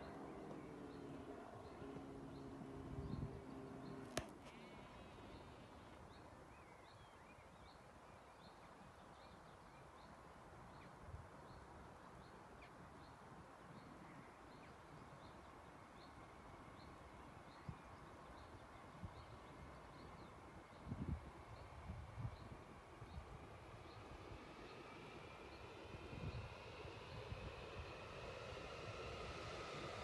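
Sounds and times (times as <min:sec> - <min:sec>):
low steady hum: 0:00.0 - 0:06.9.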